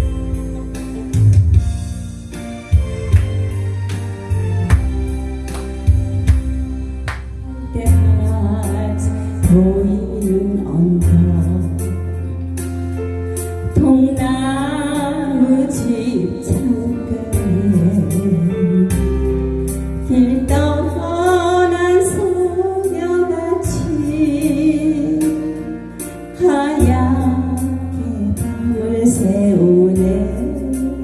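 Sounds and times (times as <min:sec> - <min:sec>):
band backing track: 0:00.0 - 0:31.0
woman singing with vibrato: 0:07.6 - 0:12.0, 0:13.7 - 0:19.0, 0:26.4 - 0:31.0.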